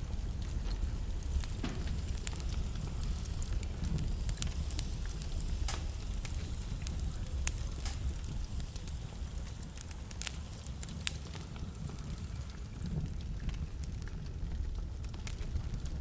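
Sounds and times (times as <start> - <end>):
burning logs crackling and popping: 0.0 - 16.0
fire flames rumbling and hissing: 0.0 - 16.0.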